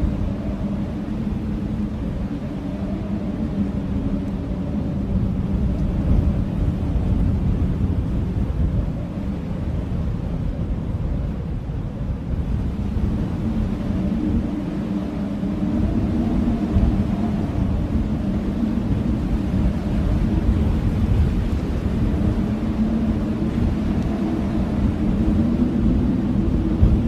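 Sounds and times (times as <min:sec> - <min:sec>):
low wind howl: 0:00.0 - 0:27.0
strong gusting wind: 0:00.0 - 0:27.0.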